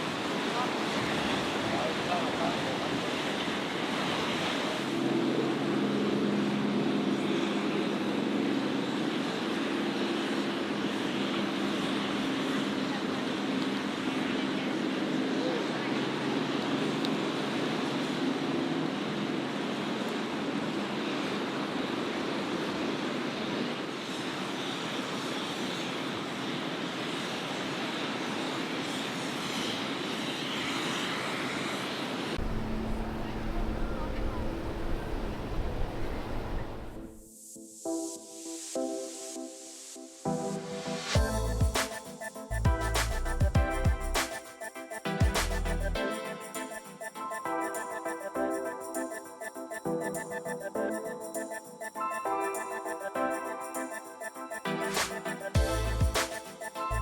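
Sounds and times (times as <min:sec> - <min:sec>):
surf rushing: 0:00.0 - 0:05.1, 0:52.4 - 0:56.9
wind: 0:00.0 - 0:37.2, 0:40.3 - 0:57.0
boat engine running: 0:32.4 - 0:37.2
deep drone with hum: 0:32.4 - 0:37.2, 0:41.2 - 0:41.8, 0:42.5 - 0:44.2, 0:45.3 - 0:46.0, 0:55.6 - 0:56.2.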